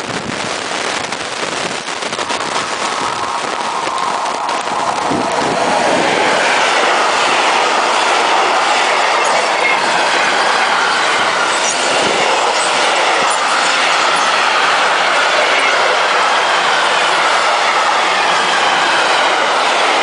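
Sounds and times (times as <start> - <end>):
train wheels running on rails: 0.0 - 20.0.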